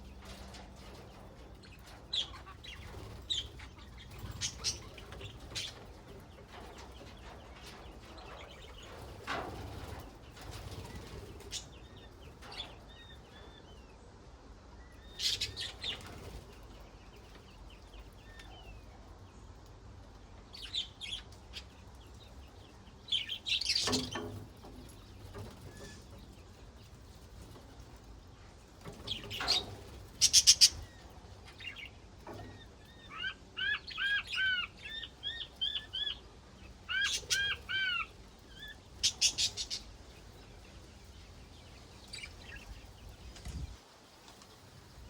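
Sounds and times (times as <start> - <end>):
budgerigars chirping and warbling: 1.6 - 9.0, 15.0 - 16.4, 20.5 - 26.2, 28.9 - 43.7.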